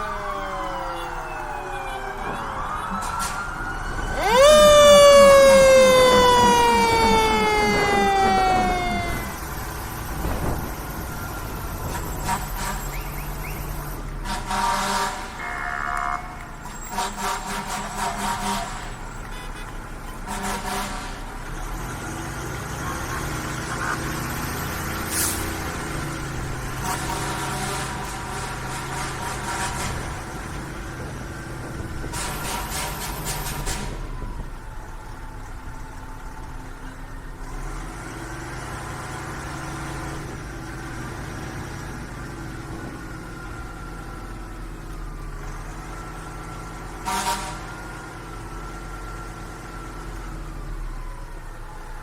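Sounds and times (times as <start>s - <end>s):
siren winding up and down: 0.0s - 14.0s
fire truck sirens: 0.0s - 52.0s.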